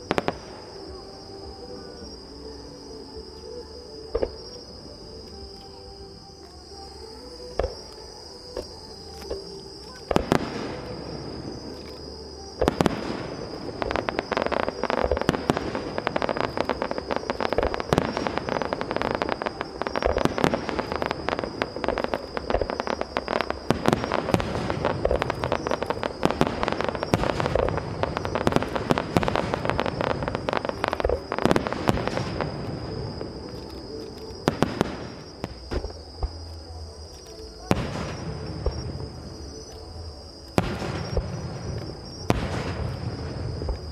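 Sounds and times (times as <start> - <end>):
fireworks crackling and popping: 0.0 - 1.3, 7.5 - 36.6, 37.4 - 43.9
fireworks heavy bangs: 12.6 - 33.6, 40.5 - 43.9.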